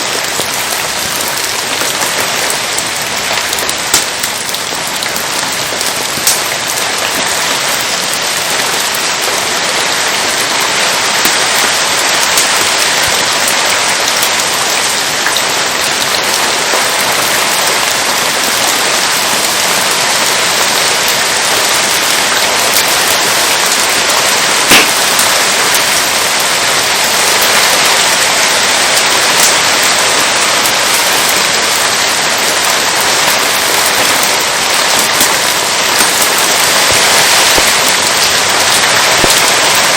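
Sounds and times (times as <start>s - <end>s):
steady rain falling: 0.0s - 39.9s
campfire pops: 1.2s - 7.2s, 24.6s - 25.3s, 36.0s - 39.5s.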